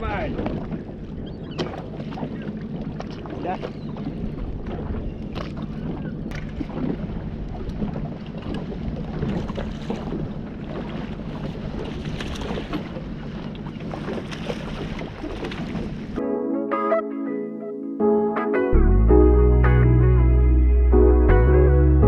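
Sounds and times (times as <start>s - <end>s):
boat engine running: 0.0s - 16.2s
wind buffeting microphone: 0.0s - 16.2s.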